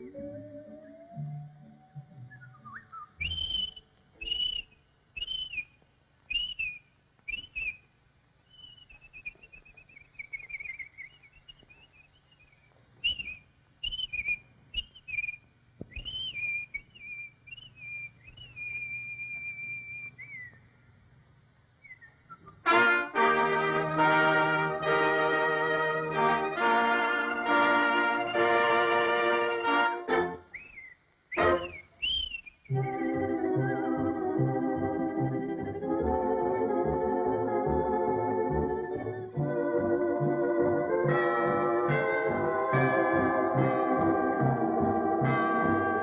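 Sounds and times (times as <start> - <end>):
cartoon whistling: 0.0 - 7.9, 8.5 - 20.6, 21.8 - 23.1, 26.7 - 34.5.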